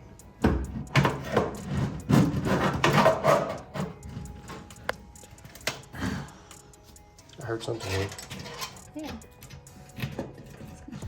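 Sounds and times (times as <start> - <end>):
wiring harness rubbing and scraping: 1.2 - 5.6, 7.0 - 11.0.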